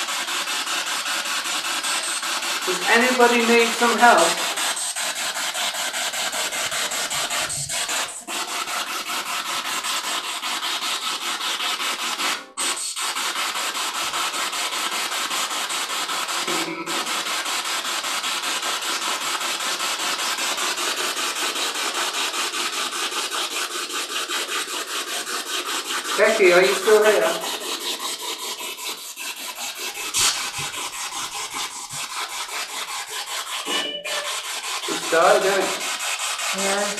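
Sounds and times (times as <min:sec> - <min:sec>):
chopped radio static hiss: 0:02.7 - 0:04.4, 0:26.2 - 0:27.4.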